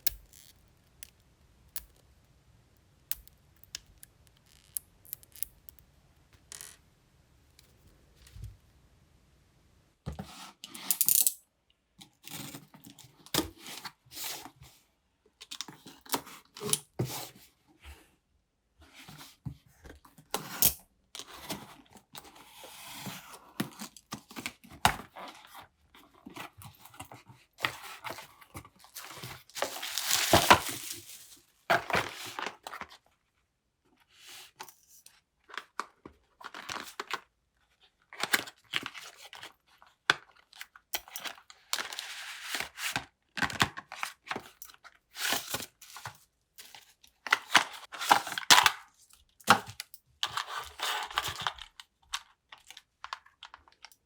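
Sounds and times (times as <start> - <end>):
paper or plastic rustling: 27.6 - 32.9.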